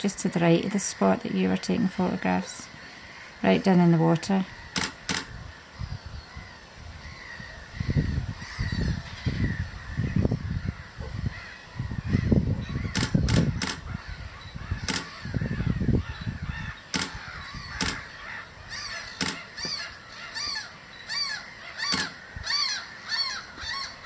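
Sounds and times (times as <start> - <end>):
wind buffeting microphone: 0.0 - 20.6
gulls calling: 0.0 - 24.0
sharp clicks: 4.7 - 5.4, 12.9 - 13.9, 14.8 - 15.2, 16.9 - 18.1, 19.2 - 19.8, 21.9 - 22.2.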